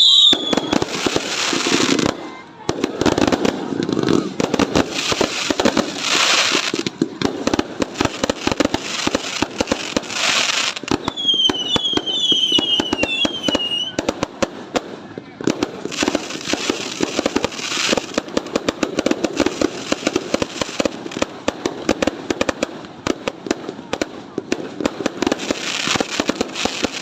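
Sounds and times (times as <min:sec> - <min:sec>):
whistling firework shells: 0:00.0 - 0:01.2, 0:10.9 - 0:14.0
fireworks popping and crackling: 0:00.0 - 0:27.0.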